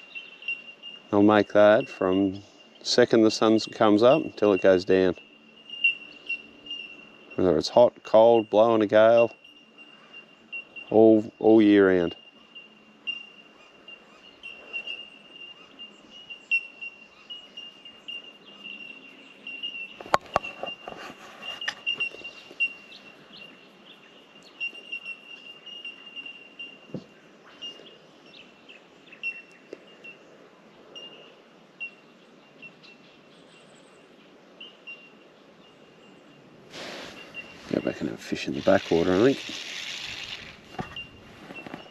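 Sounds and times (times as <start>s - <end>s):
bell-like bird calls: 0.0s - 23.6s, 24.4s - 26.9s.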